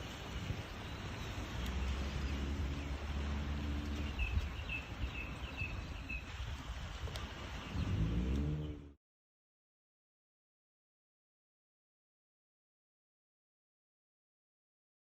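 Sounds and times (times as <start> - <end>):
low rumble: 1.4 - 9.0.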